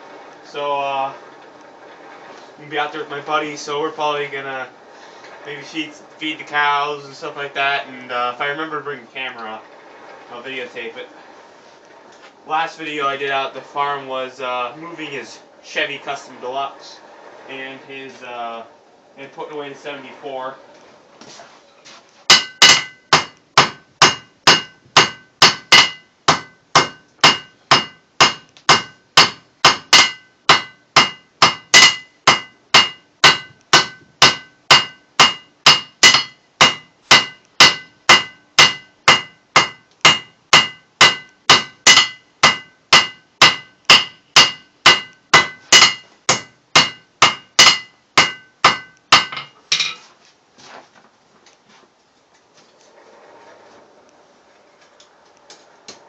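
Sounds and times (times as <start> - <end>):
hammer striking steel on anvil: 22.3 - 50.0.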